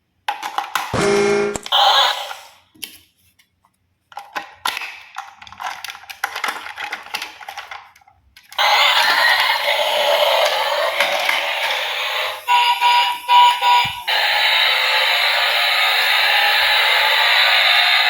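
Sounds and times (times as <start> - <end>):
toys clicking and rattling: 0.2 - 1.0, 4.1 - 18.0
short buzzing tone: 1.0 - 1.6.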